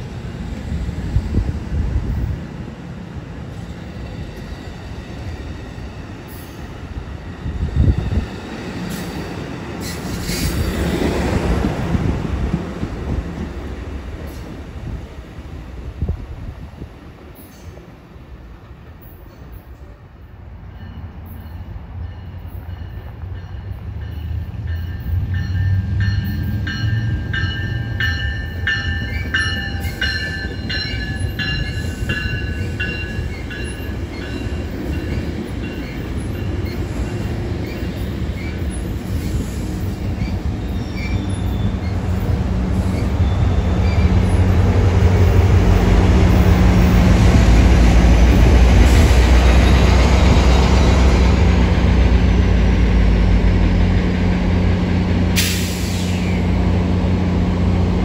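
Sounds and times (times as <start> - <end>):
diesel locomotive rumble: 21.8 - 58.0
pulsing wheel squeal: 40.2 - 44.4.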